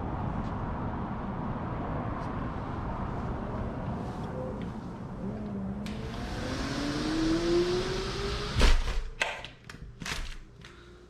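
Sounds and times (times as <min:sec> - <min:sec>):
car accelerating past: 0:05.2 - 0:08.9.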